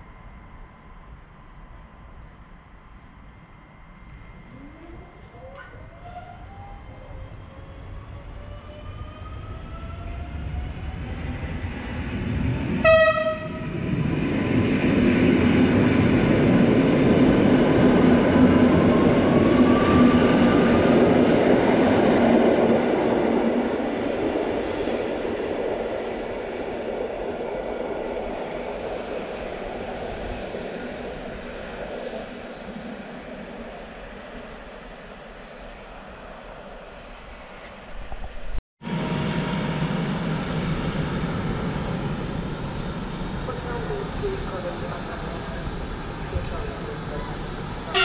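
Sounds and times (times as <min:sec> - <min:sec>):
electric train rumbling past: 0:00.0 - 0:48.0
train horn blast: 0:12.8 - 0:13.7.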